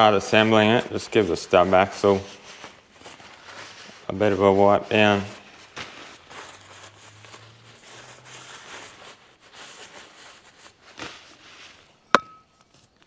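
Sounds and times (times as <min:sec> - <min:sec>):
sharp metallic clink: 0:12.1 - 0:12.6.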